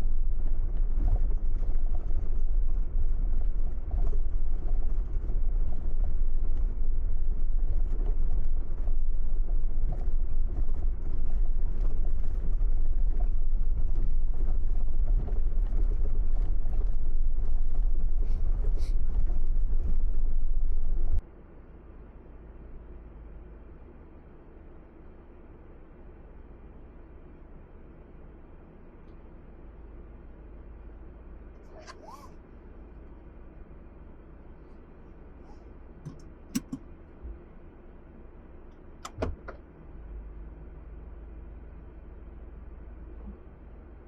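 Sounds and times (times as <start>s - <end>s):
car road and wind noise: 0.0s - 21.2s, 38.5s - 43.7s.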